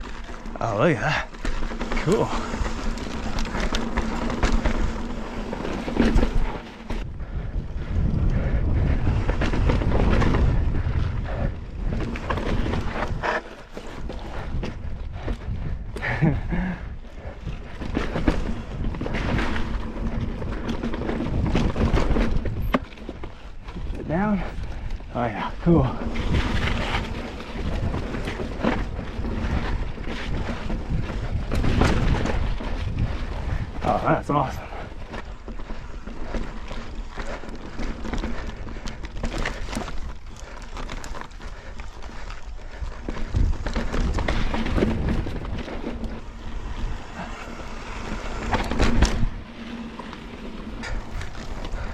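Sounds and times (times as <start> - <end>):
bike clicks and rattles: 0.0 - 51.9
wind buffeting microphone: 0.0 - 51.9
bike knocks and clatters: 17.4 - 24.1, 26.1 - 42.2.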